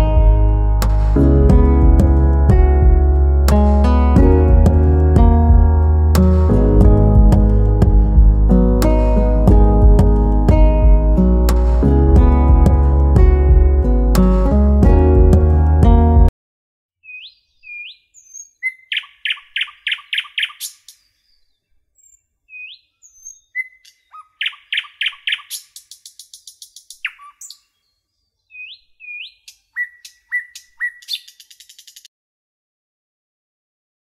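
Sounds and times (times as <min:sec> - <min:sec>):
songbird singing: 0:17.0 - 0:32.1.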